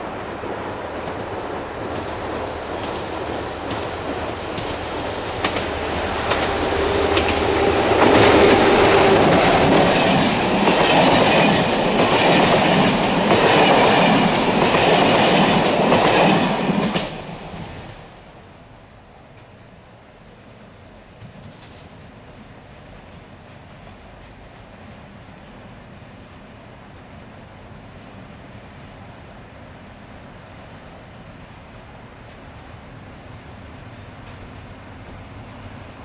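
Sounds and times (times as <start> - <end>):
locomotive rumble: 0.0 - 17.4
wheels clickety-clack over rail joints: 0.1 - 17.8, 20.9 - 22.1, 22.8 - 25.8, 33.9 - 36.0.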